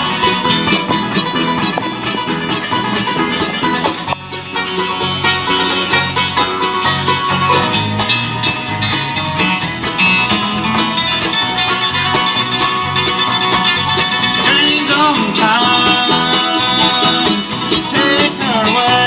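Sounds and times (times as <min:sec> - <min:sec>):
bluegrass band playing: 0:00.0 - 0:19.0
rapid banjo picking: 0:00.0 - 0:19.0.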